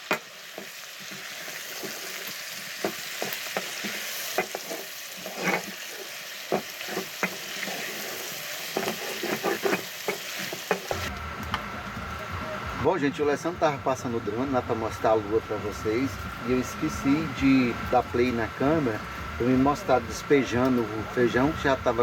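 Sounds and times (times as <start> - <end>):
onion sizzling in a pot: 0.0 - 22.0
spoon scraping a pot: 0.5 - 11.1
low steady hum: 10.9 - 22.0.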